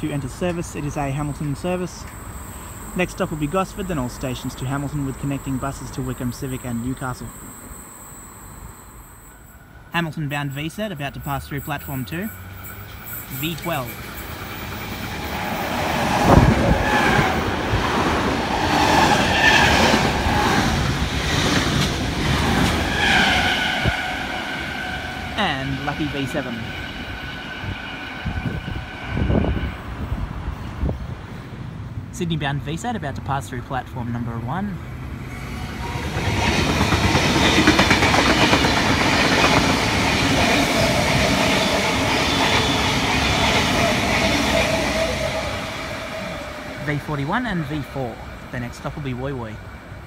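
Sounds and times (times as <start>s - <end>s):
train passing at speed: 0.0s - 32.1s, 34.7s - 50.0s
wheels clacking over rail joints: 35.7s - 46.8s.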